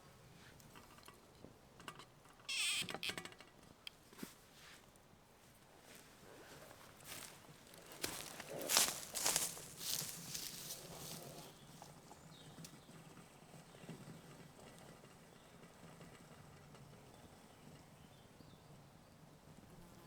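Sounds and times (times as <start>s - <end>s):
woodland background: 0.0s - 19.8s
footsteps on forest floor: 5.9s - 11.6s.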